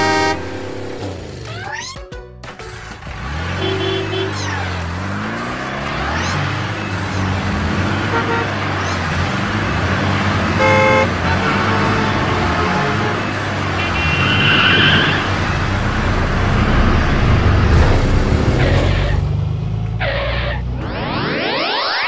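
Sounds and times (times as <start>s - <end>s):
short horn-like tones: 10.6s - 14.0s.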